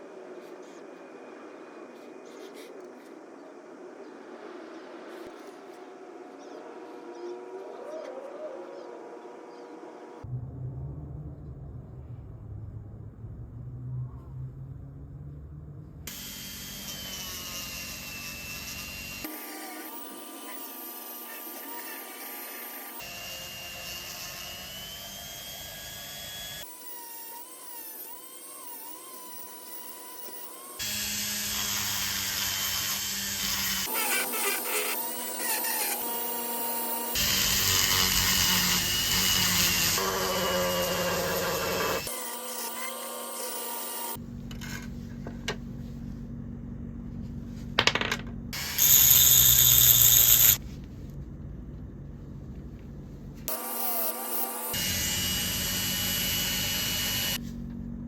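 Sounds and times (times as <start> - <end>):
power tool drilling or grinding: 16.1 - 44.2, 48.6 - 50.6, 53.5 - 57.4.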